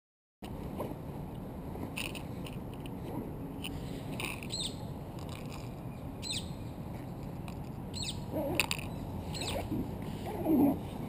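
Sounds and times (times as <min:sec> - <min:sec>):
distant city hum: 0:00.4 - 0:11.0
bird chirping: 0:03.8 - 0:06.8, 0:07.9 - 0:09.8.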